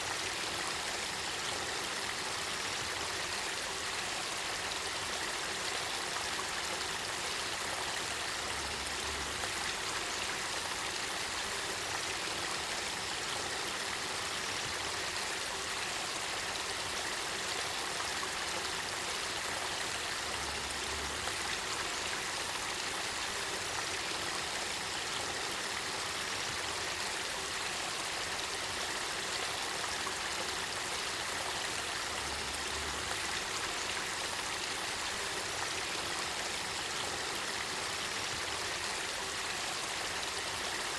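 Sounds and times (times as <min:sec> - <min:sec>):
river water flowing and babbling: 0:00.0 - 0:40.9.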